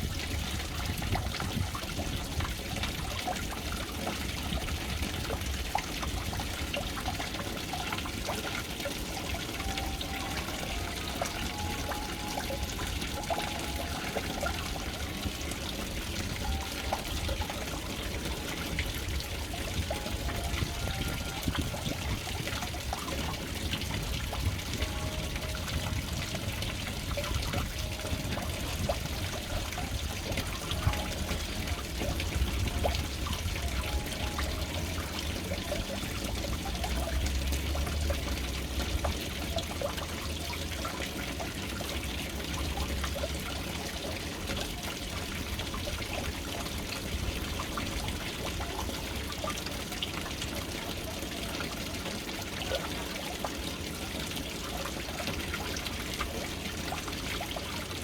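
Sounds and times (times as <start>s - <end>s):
water trickling into a tank: 0.0s - 58.0s.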